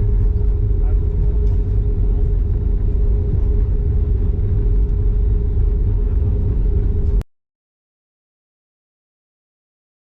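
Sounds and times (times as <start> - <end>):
constant hum: 0.0 - 7.2
airplane cabin engine rumble: 0.0 - 7.3.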